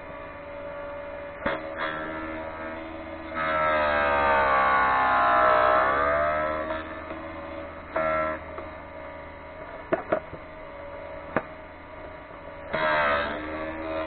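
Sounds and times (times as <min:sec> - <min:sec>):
shrill grinding whine: 0:00.0 - 0:14.0
sharpener motor humming: 0:01.5 - 0:08.7.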